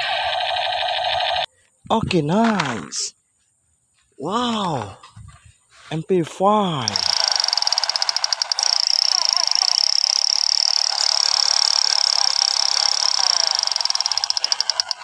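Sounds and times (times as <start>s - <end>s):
toy gun rapid-fire buzz: 0.0s - 1.5s, 6.9s - 15.0s.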